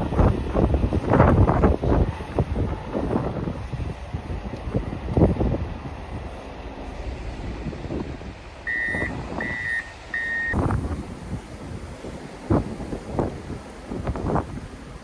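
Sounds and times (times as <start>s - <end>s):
low rumbling noise: 0.0s - 15.0s
vehicle back-up alarm beeping: 8.7s - 10.6s.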